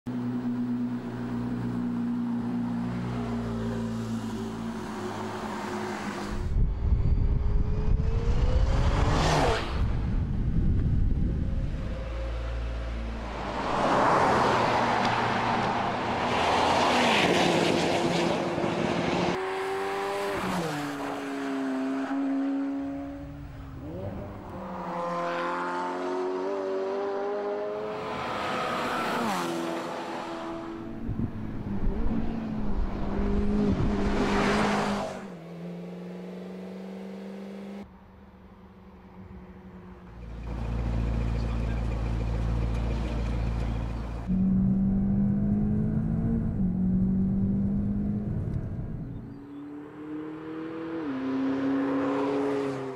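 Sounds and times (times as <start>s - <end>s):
car passing at speed: 3.1s - 10.5s, 11.3s - 40.2s, 44.3s - 52.9s
low engine rumble: 37.9s - 47.2s
car engine accelerating hard: 40.1s - 52.9s.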